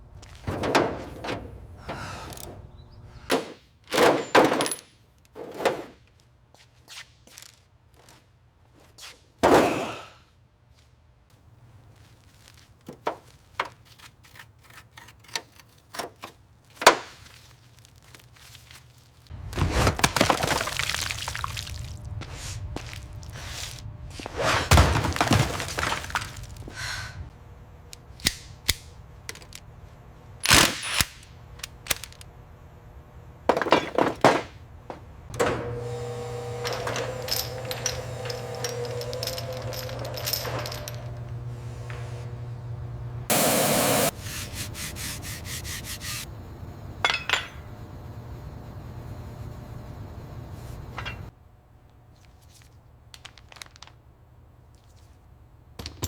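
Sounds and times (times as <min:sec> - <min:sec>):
tools and parts clicking and knocking: 0:03.3 - 0:05.8, 0:27.9 - 0:29.7, 0:30.4 - 0:32.3, 0:33.5 - 0:41.5, 0:55.8 - 0:56.0
hissing noise: 0:43.3 - 0:46.3.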